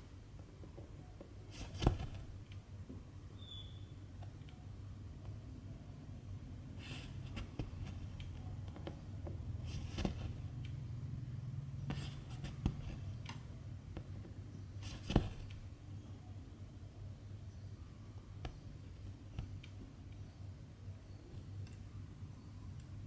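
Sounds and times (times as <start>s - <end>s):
low steady hum: 0.0s - 23.0s
thread swishing through fabric: 1.5s - 2.4s, 9.7s - 10.4s, 11.9s - 13.1s, 14.8s - 15.6s.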